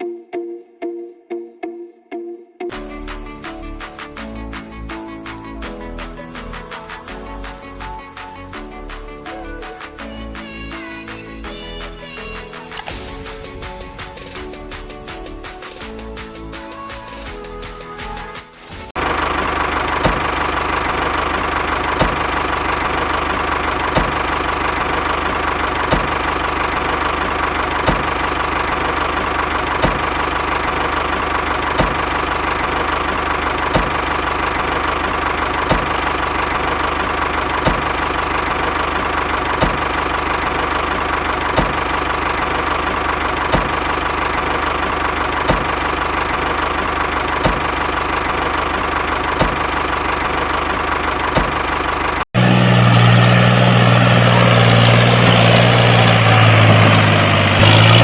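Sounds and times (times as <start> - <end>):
sharp clicks: 35.7 - 36.2.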